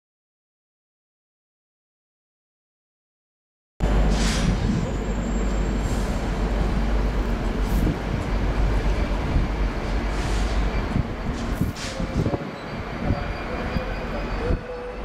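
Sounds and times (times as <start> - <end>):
locomotive engines deep rumble: 3.8 - 15.0
brief high hisses: 4.1 - 4.6.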